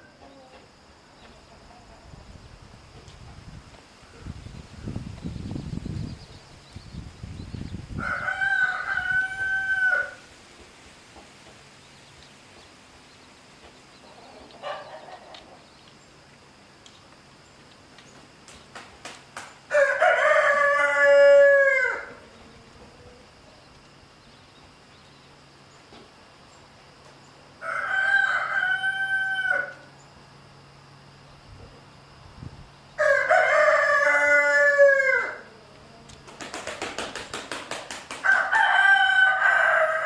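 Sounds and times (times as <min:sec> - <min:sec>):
rooster crowing: 0:08.0 - 0:10.3, 0:19.7 - 0:22.3, 0:27.6 - 0:30.0, 0:33.0 - 0:35.6, 0:38.2 - 0:40.0.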